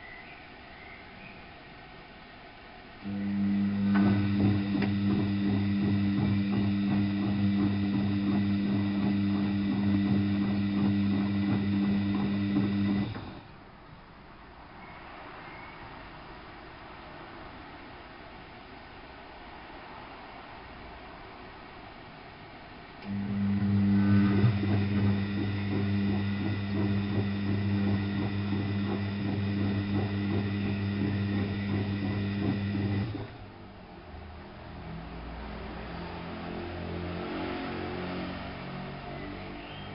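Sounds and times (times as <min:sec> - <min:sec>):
mains hum: 0:00.0 - 0:35.2
washing machine drain pump: 0:03.0 - 0:13.6, 0:23.0 - 0:33.4.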